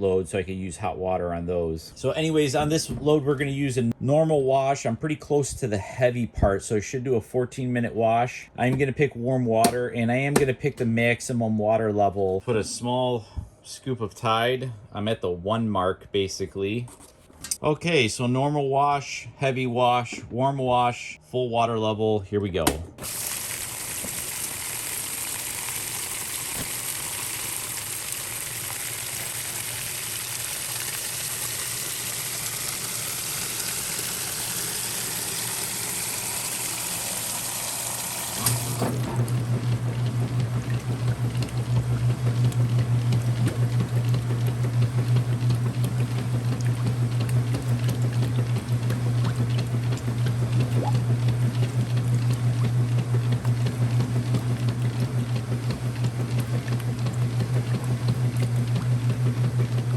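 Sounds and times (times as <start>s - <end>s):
washer motor hum: 0.0s - 4.0s, 8.6s - 12.6s, 22.5s - 59.9s
water rushing into tub: 22.9s - 59.9s
water sloshing: 38.3s - 59.9s.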